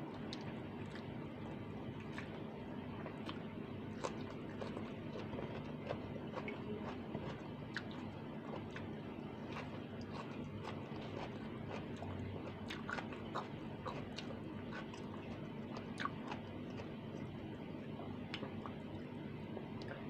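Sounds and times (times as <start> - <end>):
steady low hum: 0.0 - 20.0
person chewing food: 0.1 - 1.1, 2.0 - 2.4, 3.0 - 17.4.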